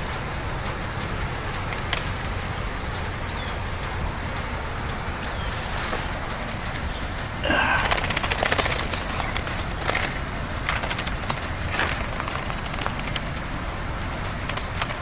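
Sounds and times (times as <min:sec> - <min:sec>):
bird wings flapping: 0:04.3 - 0:15.0.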